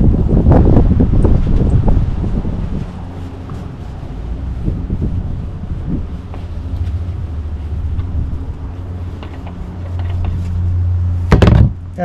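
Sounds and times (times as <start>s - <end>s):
steady low rumble: 0.0s - 12.0s
loud knock: 11.3s - 11.8s.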